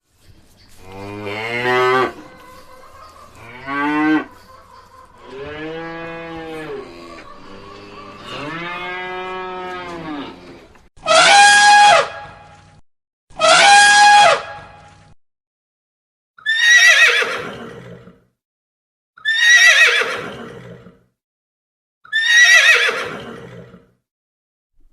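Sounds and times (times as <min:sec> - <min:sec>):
cow mooing: 0:00.9 - 0:02.6, 0:03.4 - 0:04.4, 0:05.2 - 0:10.8.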